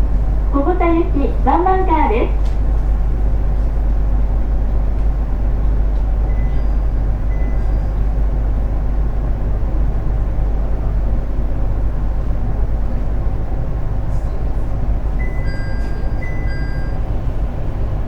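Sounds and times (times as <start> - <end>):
train equipment hum and rumble: 0.0 - 18.0.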